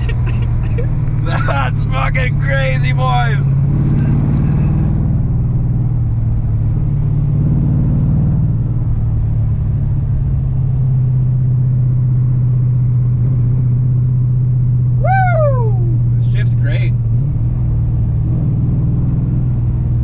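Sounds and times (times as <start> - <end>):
car engine droning: 0.0 - 20.0.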